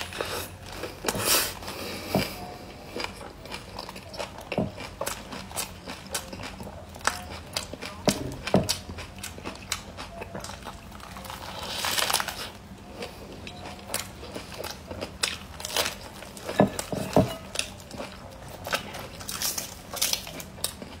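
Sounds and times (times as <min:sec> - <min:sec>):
chewing and crunching leafy greens: 0:00.0 - 0:21.0
leaf crinkling: 0:10.9 - 0:12.6, 0:14.6 - 0:20.8.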